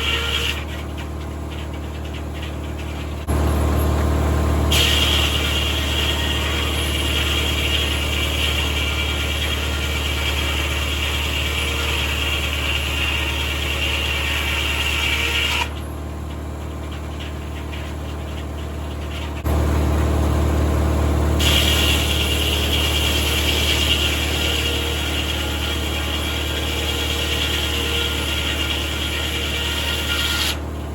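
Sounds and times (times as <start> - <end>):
high whirring of saw: 0.0 - 3.4, 4.7 - 15.9, 21.4 - 30.7
circular sawmill humming: 0.0 - 30.9.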